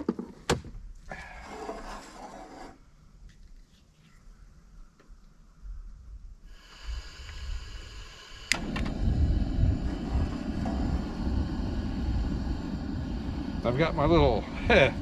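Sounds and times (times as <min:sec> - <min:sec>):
gas flame roaring: 0:06.5 - 0:15.0
gas hissing: 0:06.5 - 0:15.0
igniter click: 0:08.4 - 0:09.0.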